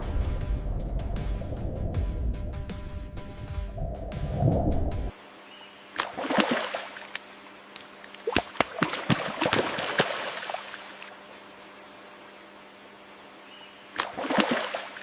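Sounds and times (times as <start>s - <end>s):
water splashing and gurgling: 6.0s - 7.2s, 8.1s - 11.1s, 14.0s - 15.0s.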